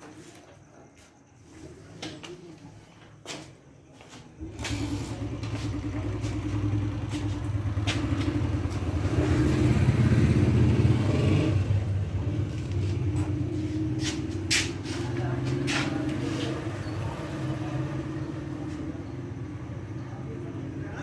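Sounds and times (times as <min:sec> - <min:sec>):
motorcycle engine running: 0:04.4 - 0:20.8.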